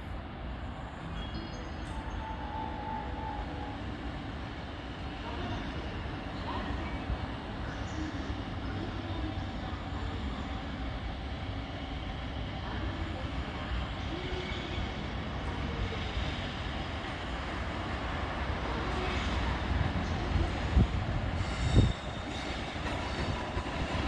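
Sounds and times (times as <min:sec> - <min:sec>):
freight train rumble: 0:00.0 - 0:24.0.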